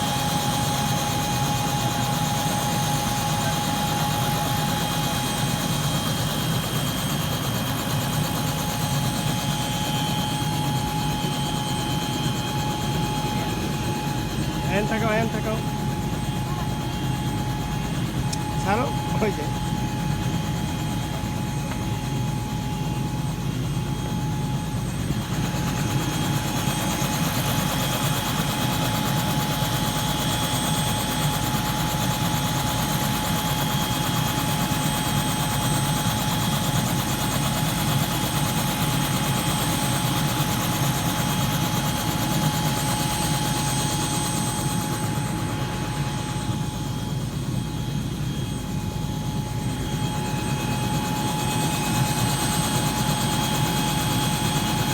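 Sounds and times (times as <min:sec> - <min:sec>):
helicopter rotor and turbine: 0:00.0 - 0:54.9
high turbine whine: 0:00.0 - 0:54.9.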